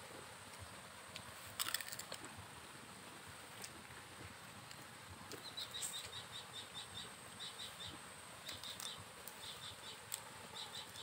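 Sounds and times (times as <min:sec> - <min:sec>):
bird chirping: 0:05.3 - 0:11.0.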